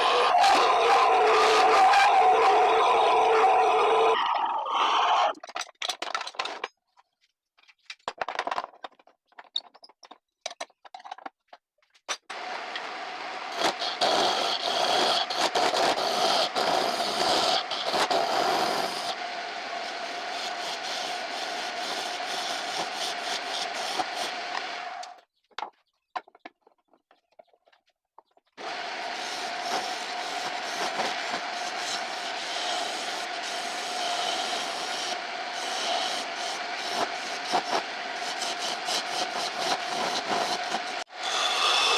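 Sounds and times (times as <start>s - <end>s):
wood lathe humming: 0.0s - 4.2s, 12.4s - 25.1s, 28.6s - 41.9s
turning tool scraping wood: 13.5s - 19.2s, 19.8s - 25.1s, 28.6s - 41.9s.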